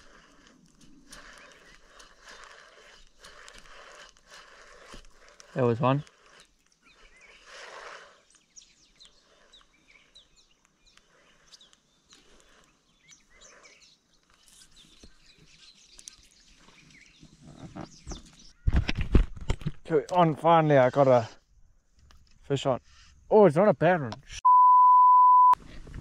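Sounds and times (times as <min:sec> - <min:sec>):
small birds chirping: 0:00.0 - 0:18.8.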